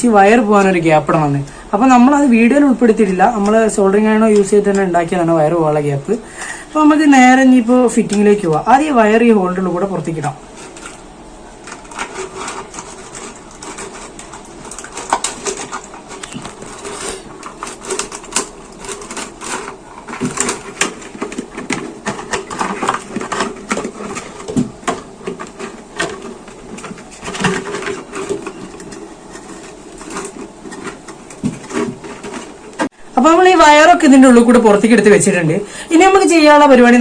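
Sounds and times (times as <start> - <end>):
plastic bottles clicking and knocking: 10.6 - 32.9.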